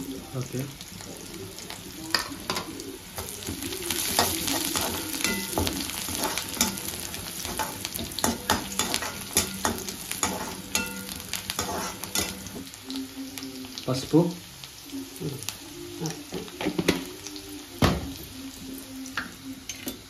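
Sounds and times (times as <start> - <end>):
onions sizzling in hot oil: 0.0 - 20.0
metal spatula scraping a pan: 2.1 - 12.6.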